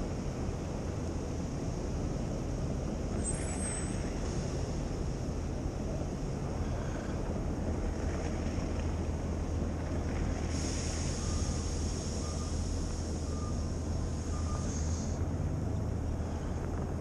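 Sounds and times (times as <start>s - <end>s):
traffic rumble: 0.0s - 17.0s
hiss: 10.5s - 15.2s
faint short beeps: 13.2s - 13.6s, 14.2s - 14.9s.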